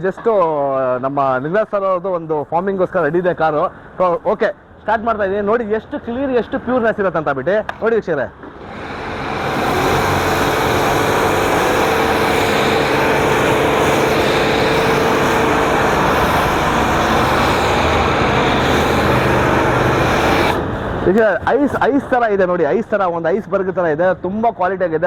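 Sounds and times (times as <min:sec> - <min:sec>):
pump motor hum: 0:08.4 - 0:21.8
faint steady whine: 0:08.4 - 0:23.3
pressure washer spray hiss: 0:08.7 - 0:21.0.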